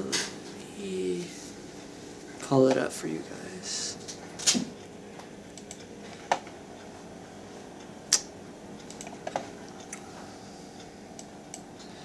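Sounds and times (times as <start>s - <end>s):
low room hum: 0.0s - 12.0s
computer mouse clicks: 5.5s - 6.5s, 8.1s - 10.0s, 11.2s - 11.7s.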